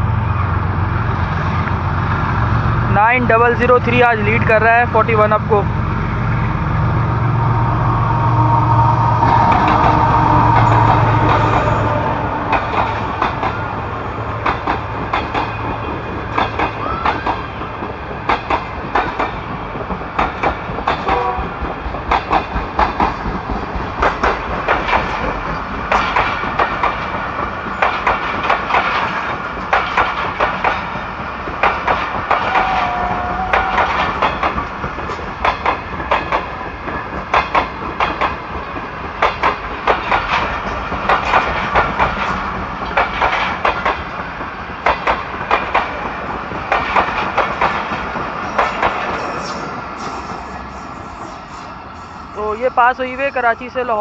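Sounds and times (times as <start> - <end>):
locomotive engine drone: 0.0 - 22.1
high whine: 5.7 - 14.4
train wheels clattering over rail joints: 14.4 - 50.5.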